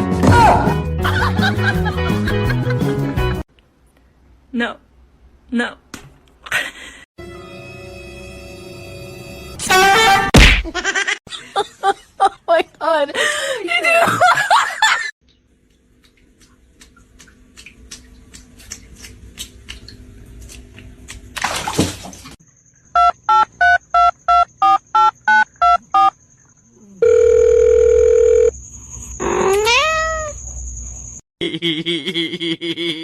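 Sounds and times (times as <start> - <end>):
cat meowing: 29.4 - 30.4.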